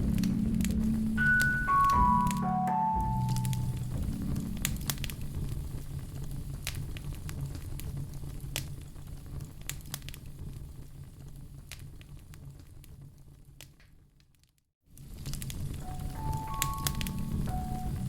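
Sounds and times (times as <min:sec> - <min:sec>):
wood fire crackling: 0:00.0 - 0:01.7, 0:03.4 - 0:14.4, 0:15.0 - 0:18.0
low steady rumble: 0:00.0 - 0:02.2, 0:03.0 - 0:09.6
firewood popping: 0:15.1 - 0:15.8.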